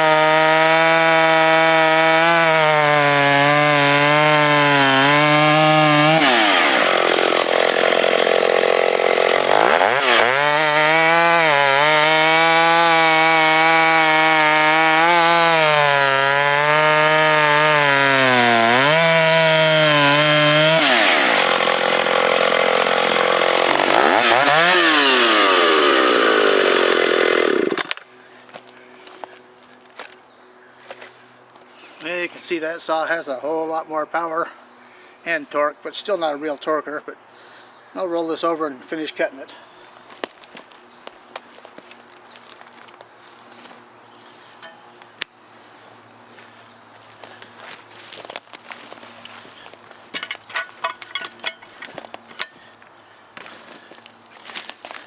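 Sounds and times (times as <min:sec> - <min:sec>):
chainsaw cutting log: 0:00.0 - 0:28.1, 0:46.3 - 0:52.8, 0:53.4 - 0:55.0.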